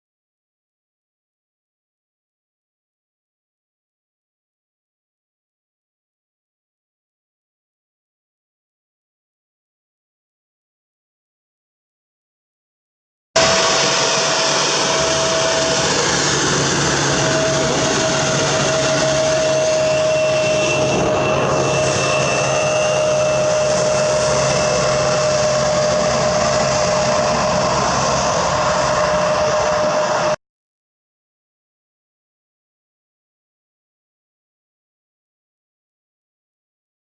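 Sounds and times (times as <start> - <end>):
jet airliner engines roaring: 13.4 - 30.4.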